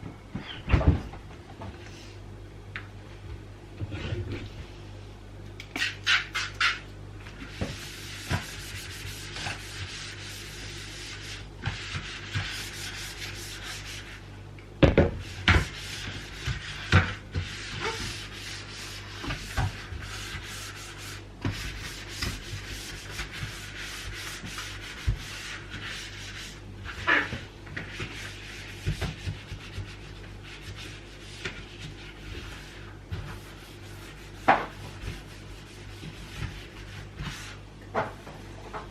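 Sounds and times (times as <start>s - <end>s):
hand scrubbing a surface: 7.4s - 14.2s, 15.2s - 37.6s.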